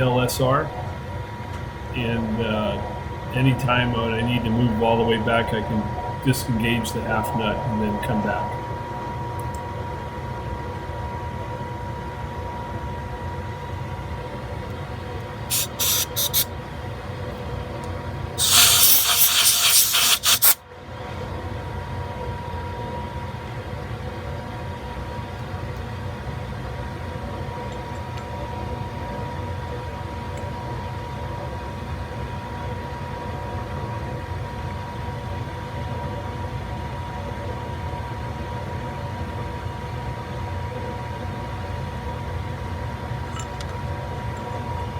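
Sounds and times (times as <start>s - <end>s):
hissing blasts: 15.5s - 16.5s, 18.4s - 20.6s.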